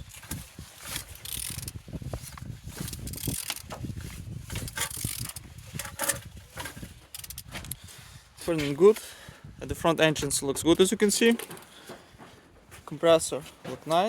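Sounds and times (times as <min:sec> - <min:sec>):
wrench turning engine by hand: 0:00.8 - 0:01.9, 0:02.6 - 0:07.8.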